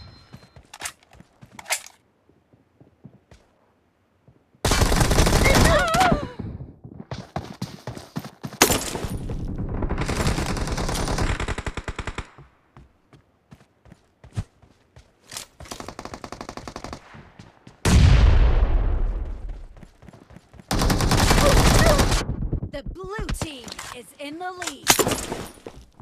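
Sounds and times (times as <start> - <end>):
video game gunfire: 20.7 - 23.5.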